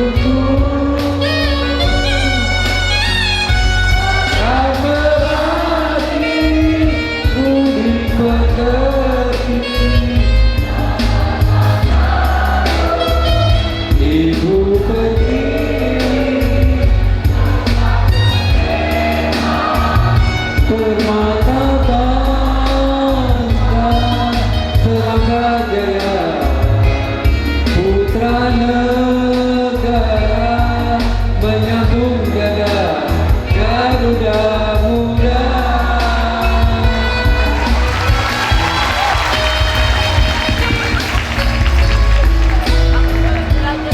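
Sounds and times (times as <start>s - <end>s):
accompaniment with strong bass and beat: 0.0s - 43.9s
school choir singing: 4.0s - 6.8s, 10.6s - 13.8s, 14.7s - 20.6s.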